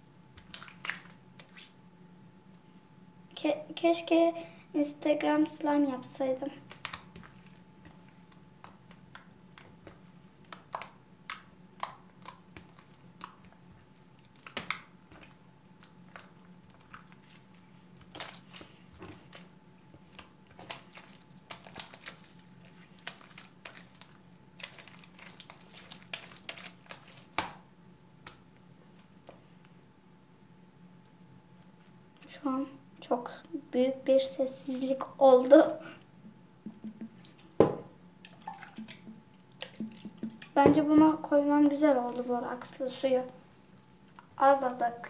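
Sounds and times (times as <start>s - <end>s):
slime clicking and crackling: 6.6s - 27.6s.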